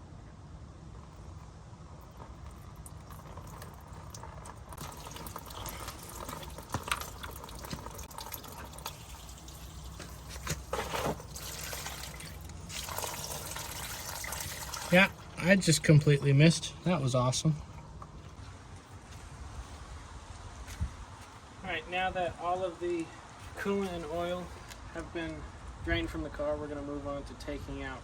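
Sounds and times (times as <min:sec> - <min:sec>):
fluid pouring and splashing: 0:02.0 - 0:16.0.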